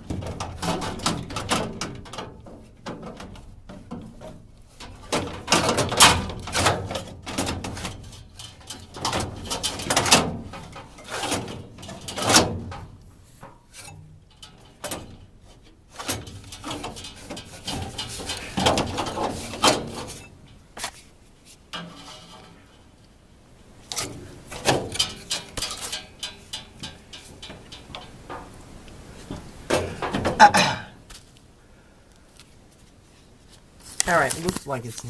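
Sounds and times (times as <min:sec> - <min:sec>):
sharp knocks and clunks: 0:00.0 - 0:15.2, 0:15.9 - 0:21.0, 0:23.9 - 0:28.6, 0:29.2 - 0:31.2.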